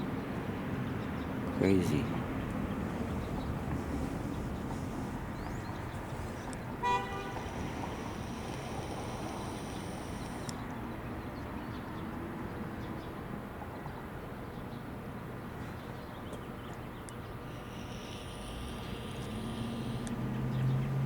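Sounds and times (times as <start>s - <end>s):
short horn toot: 6.8s - 7.6s.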